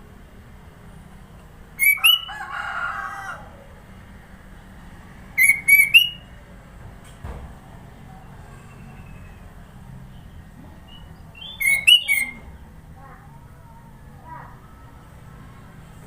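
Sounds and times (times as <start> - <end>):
bird whistled calls: 1.8 - 2.3, 5.4 - 6.3, 8.6 - 9.5, 10.9 - 12.5
low bird warbling: 1.8 - 2.4, 5.4 - 6.3, 10.9 - 12.6.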